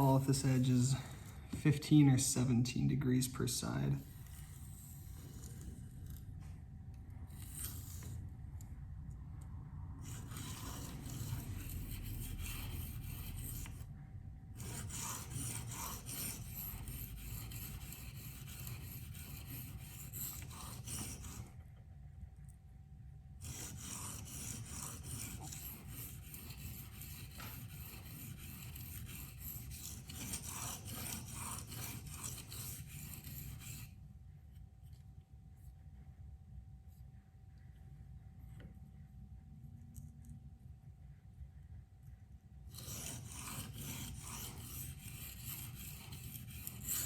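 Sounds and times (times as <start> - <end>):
knife scraping on whetstone: 10.0 - 13.8, 14.6 - 21.5, 23.4 - 33.9, 42.7 - 47.0.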